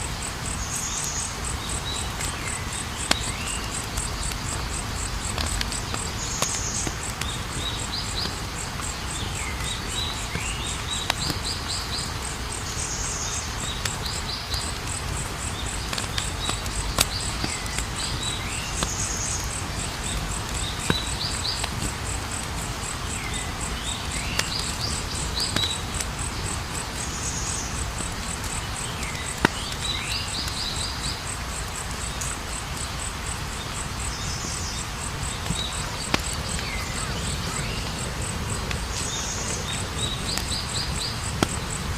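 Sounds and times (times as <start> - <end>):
campfire burning: 0.0 - 41.9
fire crackling pops: 0.0 - 41.9
high insect trill: 0.0 - 41.9.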